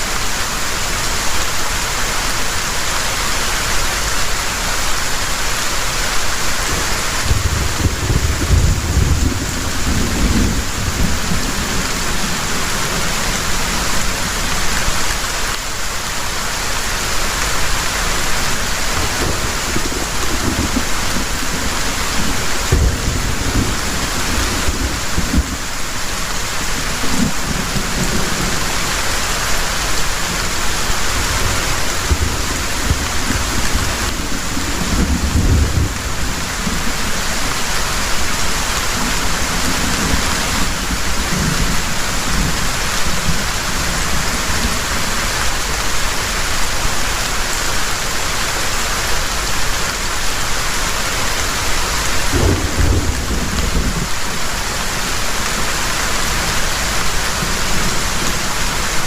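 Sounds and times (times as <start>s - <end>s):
heavy rain falling: 0.0s - 59.0s
thunder rumbling: 6.6s - 15.0s, 18.4s - 45.2s, 52.2s - 56.8s.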